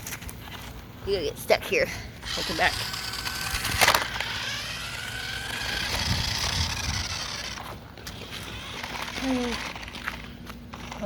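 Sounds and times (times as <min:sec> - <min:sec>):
toy truck motor whirring: 0:02.2 - 0:11.0.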